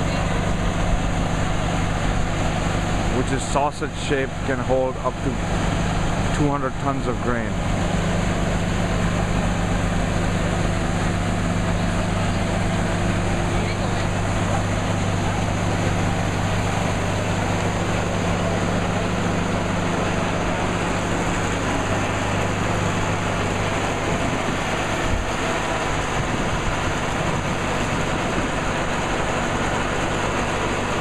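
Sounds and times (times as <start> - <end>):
grain unloader running: 0.0 - 31.0
tractor engine hum: 0.0 - 31.0.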